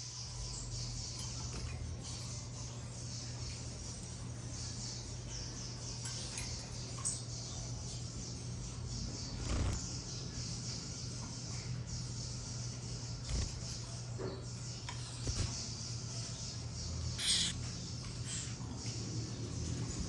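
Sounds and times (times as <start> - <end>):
cage birds chirping: 0.0 - 20.0.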